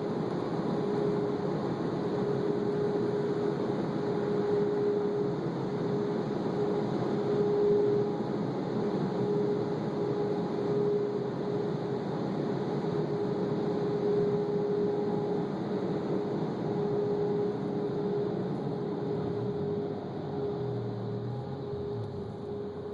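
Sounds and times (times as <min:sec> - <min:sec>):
constant machine whine: 0:00.0 - 0:22.9
car wash machinery humming: 0:14.2 - 0:22.9.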